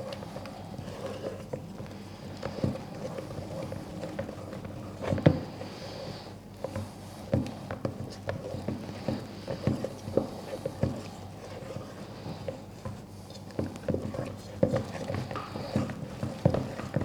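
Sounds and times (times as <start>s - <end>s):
spoon scraping batter in bowl: 0.1s - 6.9s.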